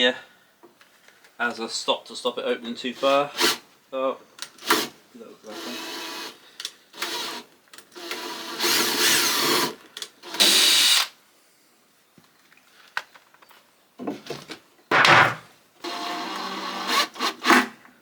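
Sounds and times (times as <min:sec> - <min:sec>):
power drill driving into wood: 0:04.6 - 0:04.9, 0:07.0 - 0:07.4, 0:08.0 - 0:11.1, 0:15.0 - 0:17.8.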